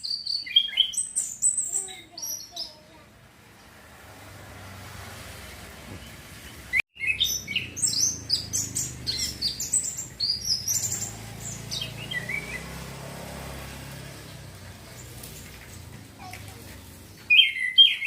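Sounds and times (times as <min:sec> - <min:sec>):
thrush singing: 0:04.4 - 0:18.0.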